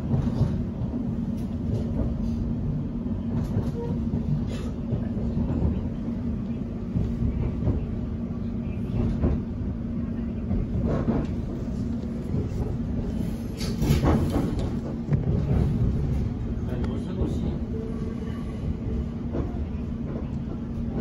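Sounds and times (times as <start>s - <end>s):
train low rumble: 0.0s - 21.0s.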